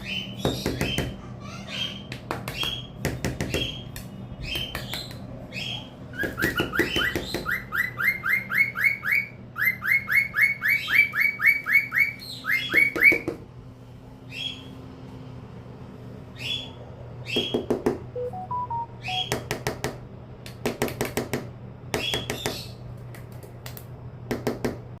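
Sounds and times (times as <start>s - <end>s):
bird chirping: 0.0s - 13.2s, 14.3s - 14.7s, 16.3s - 19.4s.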